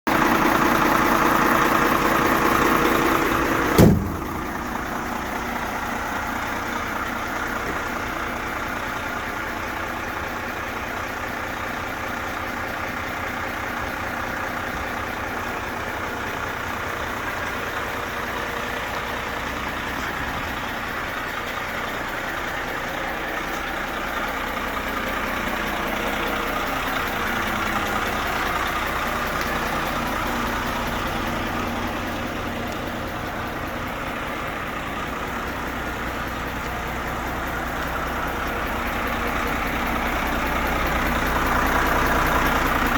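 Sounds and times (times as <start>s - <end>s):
diesel truck engine idling: 0.1s - 42.9s
sharp loud thump: 3.8s - 4.4s.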